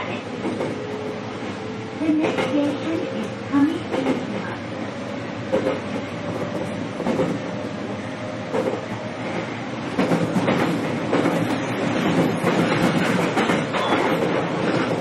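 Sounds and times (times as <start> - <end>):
train rolling noise: 0.0 - 15.0
wheels clacking over rail joints: 10.0 - 15.0.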